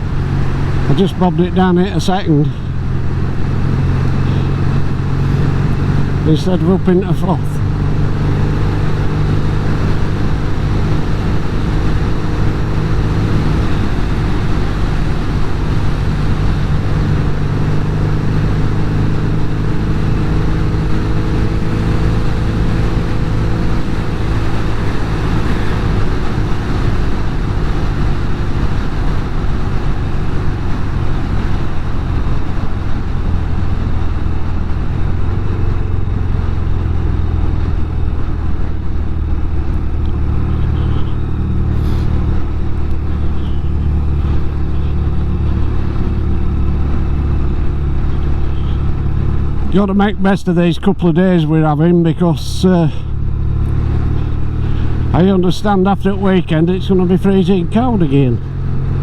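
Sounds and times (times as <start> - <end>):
motorcycle engine running: 0.0 - 59.0
wind and road rush: 0.0 - 59.0.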